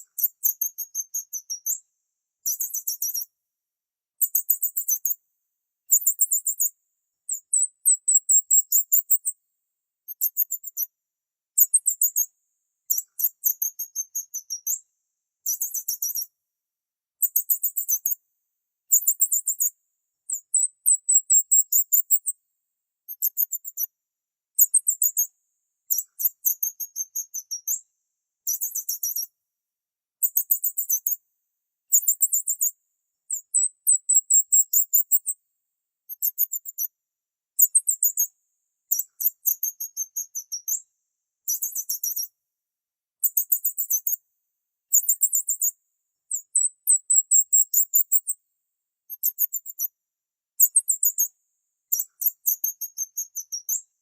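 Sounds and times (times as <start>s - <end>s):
high-pitched bird chirping: 33.3s - 35.3s.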